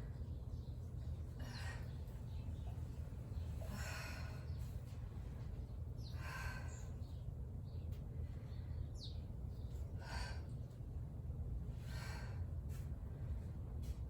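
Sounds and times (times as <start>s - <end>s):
steady low hum: 0.0s - 14.0s
woman breathing hard: 3.6s - 5.0s, 6.0s - 7.2s, 9.8s - 11.0s, 11.7s - 13.6s.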